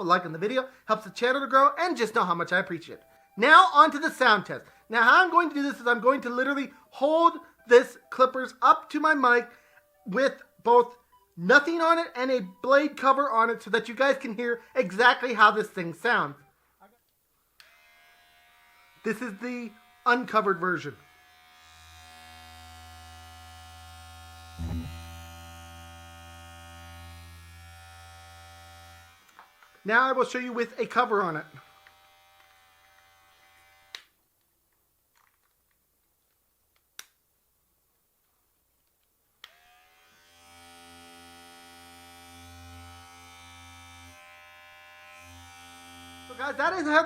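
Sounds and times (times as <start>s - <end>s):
electric clippers buzzing: 17.6s - 20.3s, 21.0s - 29.9s, 31.4s - 34.2s, 39.4s - 46.6s.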